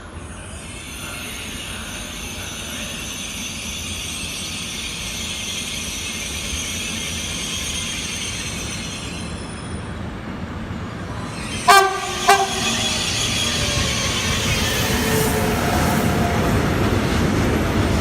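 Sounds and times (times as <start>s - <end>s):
train rumble and wheel noise: 0.0s - 18.0s
train horn blasts: 11.7s - 13.4s.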